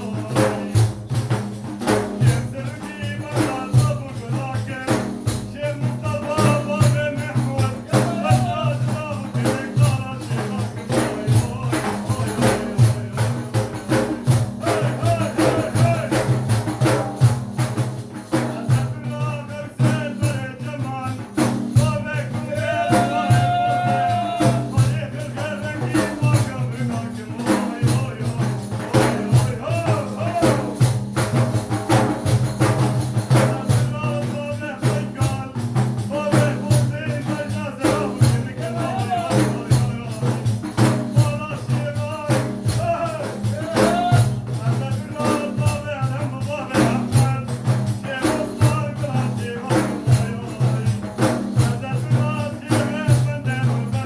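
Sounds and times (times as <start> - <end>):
person singing: 0.0 - 0.9, 2.1 - 16.4, 18.3 - 30.8, 33.2 - 54.0
frame drums and jingles: 0.0 - 54.0.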